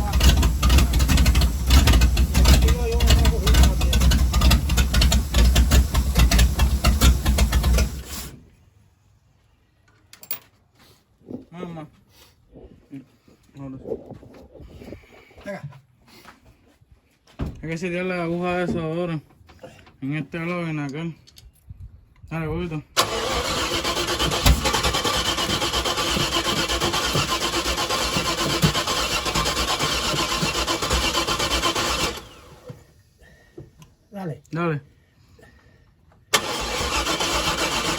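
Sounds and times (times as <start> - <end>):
engine running roughly: 0.0 - 8.4, 23.0 - 32.6, 36.4 - 37.9.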